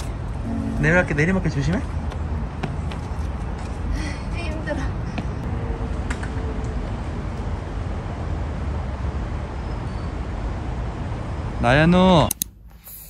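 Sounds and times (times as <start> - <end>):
low rumble: 0.2 - 2.2
hiss: 12.7 - 13.0.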